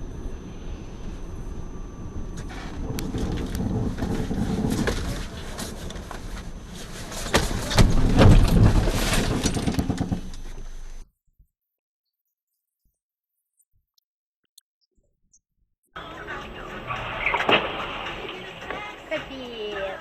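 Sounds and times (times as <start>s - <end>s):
car driving rumble: 0.0s - 11.0s
loud knocks and rumbling: 2.0s - 11.0s.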